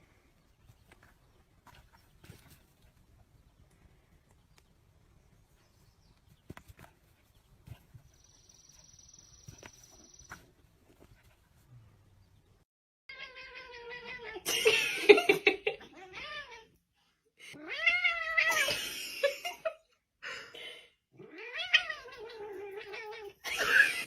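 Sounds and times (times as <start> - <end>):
cat yowling: 21.2 - 24.0.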